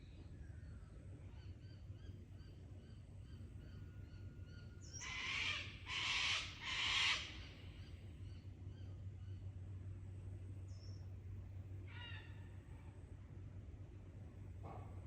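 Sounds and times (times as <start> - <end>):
large bird harsh calls: 4.9 - 7.5.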